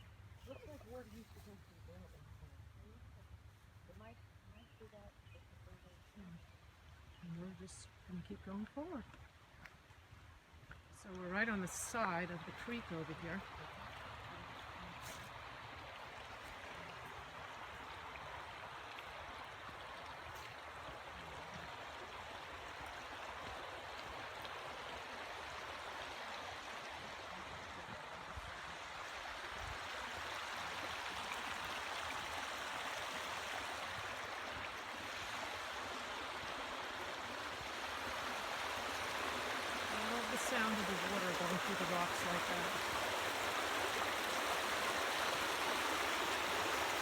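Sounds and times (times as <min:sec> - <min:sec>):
creek water over rocks: 0:00.0 - 0:47.0.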